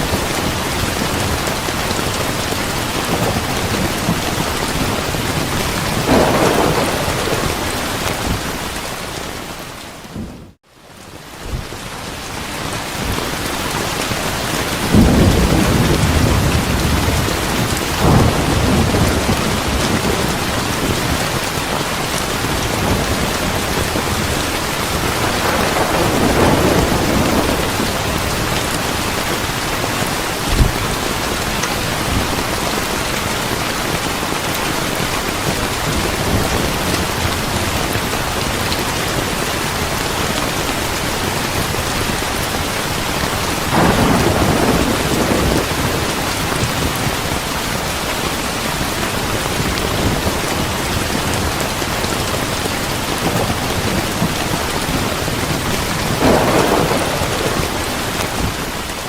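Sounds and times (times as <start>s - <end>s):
thunder rumbling: 0.0s - 10.6s, 14.6s - 33.2s, 41.5s - 47.8s, 53.1s - 59.0s
heavy rain: 0.0s - 59.0s
sharp thunder crack: 5.9s - 8.5s, 43.7s - 46.0s, 56.2s - 58.5s.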